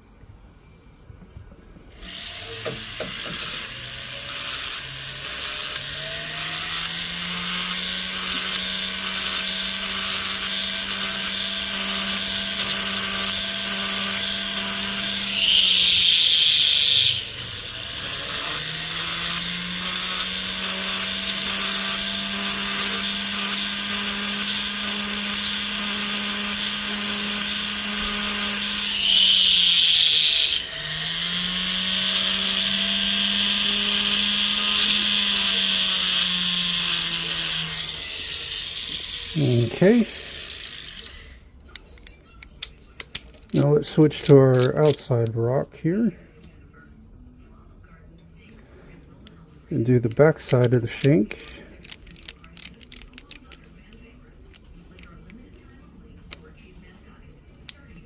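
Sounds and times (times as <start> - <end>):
high-pitched grinding on metal: 2.0 - 41.4
rotary tool motor spinning: 2.0 - 41.4, 50.1 - 53.6.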